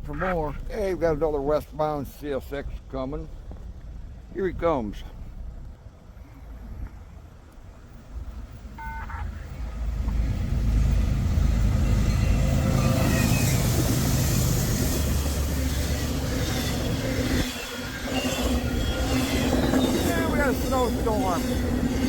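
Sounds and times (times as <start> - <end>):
diesel locomotive engine rumble: 0.0 - 22.0
short beep: 8.8 - 9.4
hiss of wheels and rushing air: 9.6 - 22.0.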